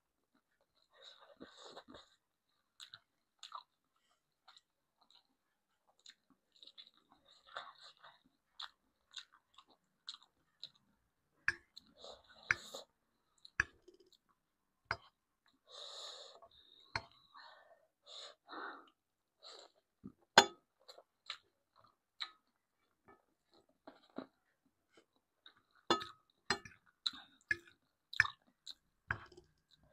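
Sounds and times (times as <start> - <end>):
chewing with wet mouth clicks: 1.9 - 10.9, 20.8 - 24.4, 25.0 - 29.9.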